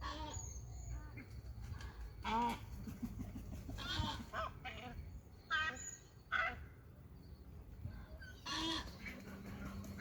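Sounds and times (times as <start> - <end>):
faint bird calls: 0.0 - 6.9, 7.8 - 10.0
harsh bird calls: 0.0 - 6.9, 8.0 - 10.0.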